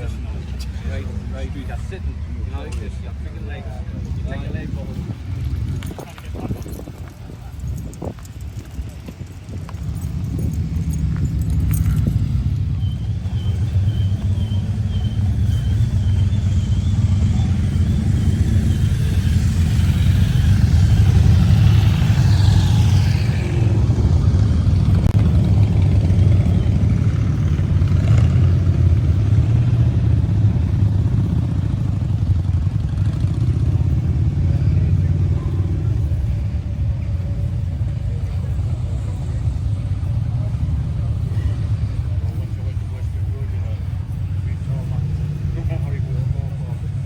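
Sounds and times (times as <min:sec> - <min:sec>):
vehicle engine rumbling: 0:00.0 - 0:47.0.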